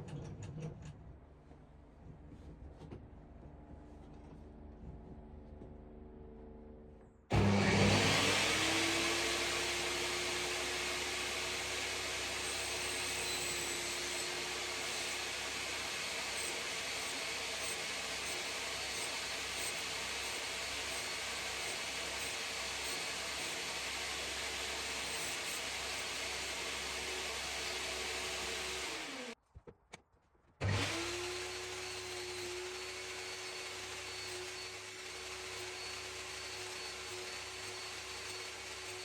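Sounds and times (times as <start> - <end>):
electric motor humming: 7.3 - 29.4, 30.6 - 39.0.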